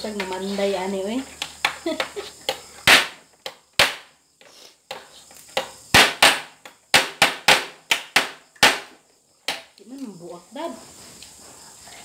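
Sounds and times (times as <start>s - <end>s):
crab shells being struck: 2.5s - 4.1s, 5.6s - 9.7s.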